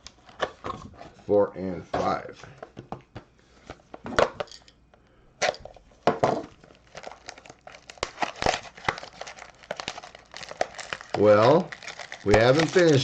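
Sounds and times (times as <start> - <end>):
packaging crinkling and tearing: 6.6 - 13.0.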